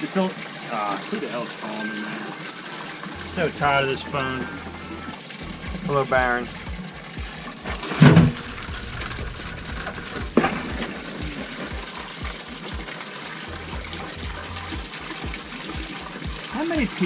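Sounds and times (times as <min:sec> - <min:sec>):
water running into a bucket: 0:00.0 - 0:17.0
loud thump: 0:05.6 - 0:12.9.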